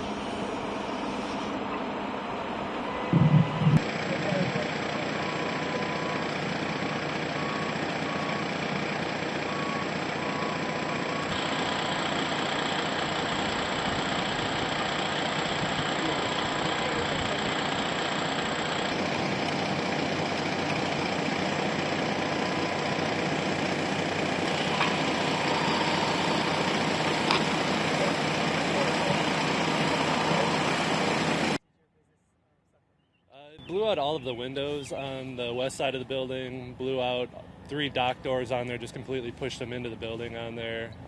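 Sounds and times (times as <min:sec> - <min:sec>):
vehicle engines idling: 0:00.0 - 0:31.6, 0:33.6 - 0:41.0
short beeps: 0:02.9 - 0:03.8.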